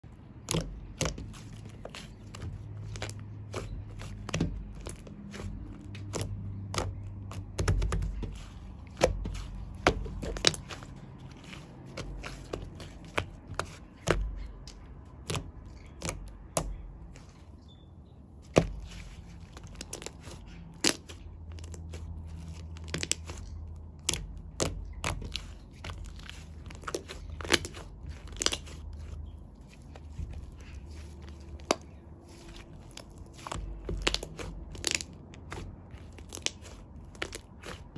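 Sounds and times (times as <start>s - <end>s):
low steady hum: 0.0s - 37.9s
shaving foam crackling: 24.8s - 37.9s.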